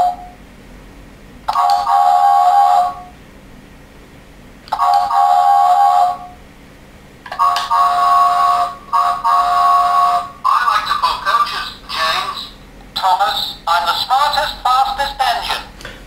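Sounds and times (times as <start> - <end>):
toy train electronic chime tones: 1.5 - 3.1, 4.8 - 6.3, 7.3 - 10.3.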